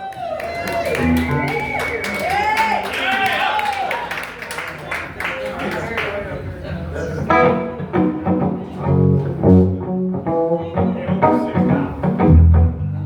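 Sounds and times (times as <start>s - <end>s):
plucked string instruments: 7.2s - 13.0s
low bass notes: 7.3s - 13.0s.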